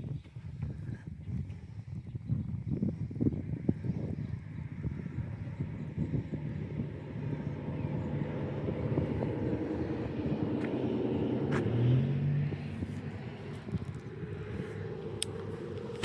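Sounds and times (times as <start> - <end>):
vehicle passing by: 4.7 - 16.0.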